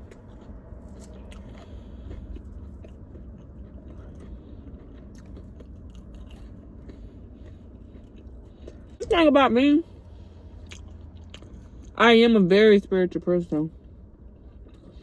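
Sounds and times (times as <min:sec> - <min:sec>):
person chewing food: 0:00.0 - 0:09.2, 0:09.8 - 0:12.0, 0:13.7 - 0:15.0
low steady rumble: 0:00.0 - 0:15.0.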